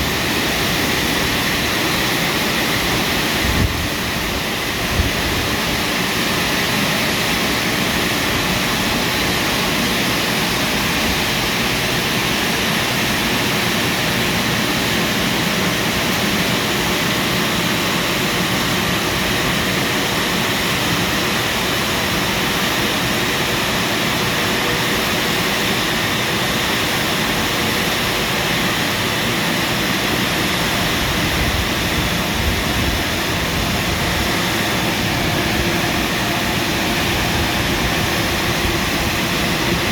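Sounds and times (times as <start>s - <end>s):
car wash drying blowers: 0.0s - 39.9s.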